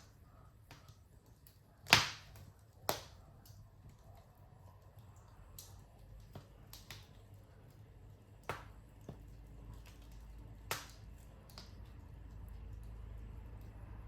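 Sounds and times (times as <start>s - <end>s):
wood fire crackling and popping: 0.0s - 14.0s
low steady rumble: 3.2s - 14.0s.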